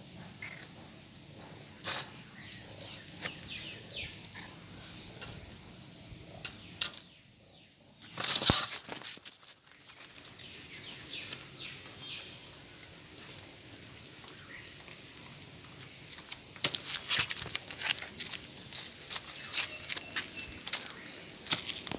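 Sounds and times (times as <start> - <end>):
loud scuffle: 8.1 - 9.6.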